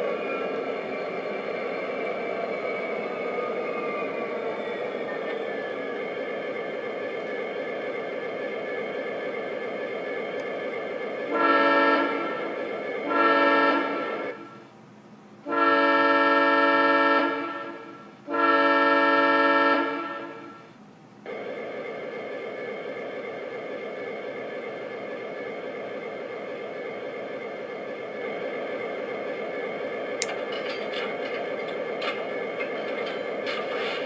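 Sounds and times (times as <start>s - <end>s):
diesel horn blasts: 11.3s - 12.3s, 15.5s - 20.3s
diesel engine sound: 21.3s - 34.0s.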